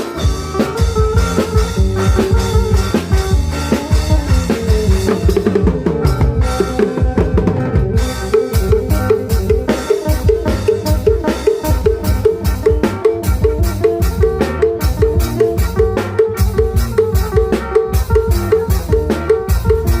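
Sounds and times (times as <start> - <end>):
drums beating fast rhythm: 0.0 - 20.0
repeating melodic figure: 0.0 - 20.0.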